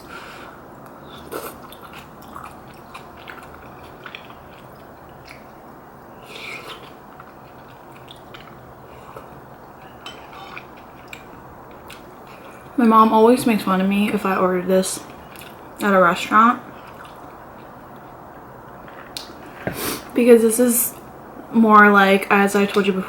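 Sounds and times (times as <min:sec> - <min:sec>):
person chewing food: 0:00.8 - 0:12.8, 0:15.1 - 0:15.6, 0:16.6 - 0:20.1.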